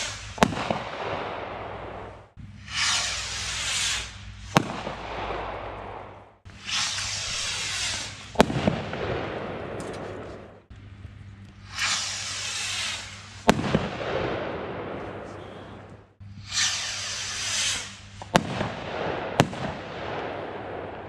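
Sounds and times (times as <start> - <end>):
firework hissing whoosh: 0.0 - 5.6, 6.5 - 9.0, 11.6 - 14.0, 16.4 - 18.8
firework bang: 0.0 - 10.6, 11.7 - 15.4, 16.5 - 21.0
firework crackle: 0.0 - 10.7, 11.6 - 21.0.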